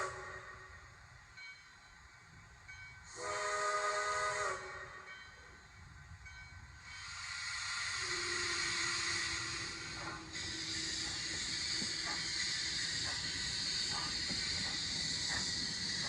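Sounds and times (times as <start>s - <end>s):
steam locomotive whistle blast: 0.0s - 1.0s, 3.1s - 5.4s, 7.0s - 16.0s
steam hiss: 6.8s - 16.0s.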